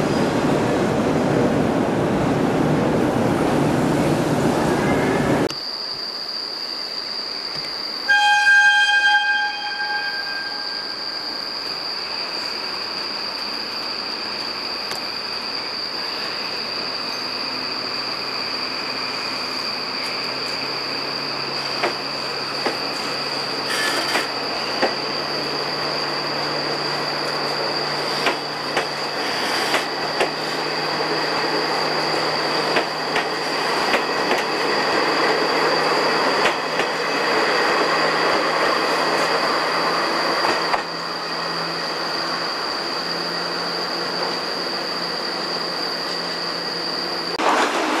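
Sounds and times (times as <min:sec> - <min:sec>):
train rolling rumble: 0:09.4 - 0:48.0
rail joint clicks: 0:21.6 - 0:25.0, 0:27.2 - 0:39.4, 0:40.4 - 0:41.0.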